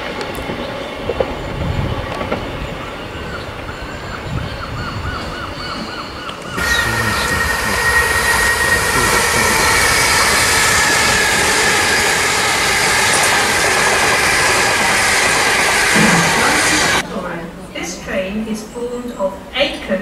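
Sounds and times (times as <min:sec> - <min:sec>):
train wheels rushing on rails: 0:00.0 - 0:04.6, 0:06.4 - 0:17.1
high steady tone: 0:06.6 - 0:17.0.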